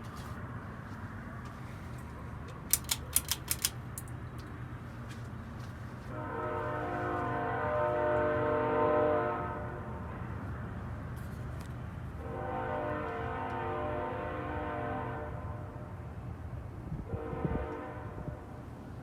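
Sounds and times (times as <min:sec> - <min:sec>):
horn chord blasts: 0:06.1 - 0:09.8, 0:12.2 - 0:15.4.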